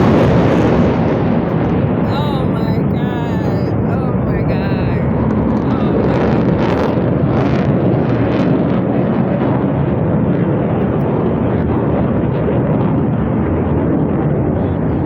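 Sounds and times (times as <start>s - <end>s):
aircraft engines passing overhead: 5.0s - 15.0s.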